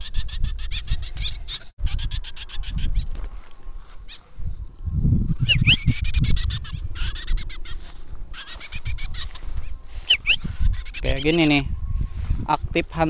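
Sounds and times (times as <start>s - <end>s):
wind buffeting microphone: 0.0s - 13.0s
bird chirps: 5.4s - 12.7s.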